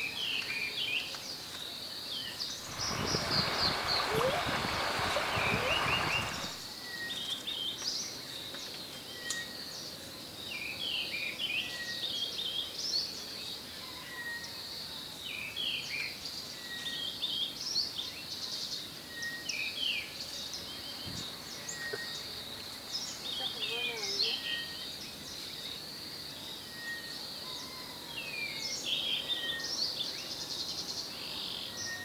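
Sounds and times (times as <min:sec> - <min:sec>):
birds chirping: 0:02.2 - 0:06.7
rushing noise: 0:02.6 - 0:06.6.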